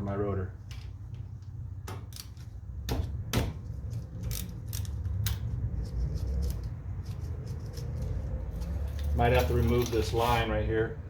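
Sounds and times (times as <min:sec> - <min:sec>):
metallic clicks of hand tools: 0:03.8 - 0:09.2.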